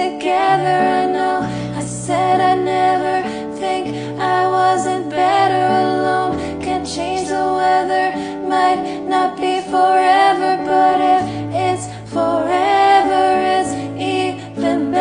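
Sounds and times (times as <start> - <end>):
acoustic guitar: 0.0 - 15.0
woman singing: 0.0 - 15.0.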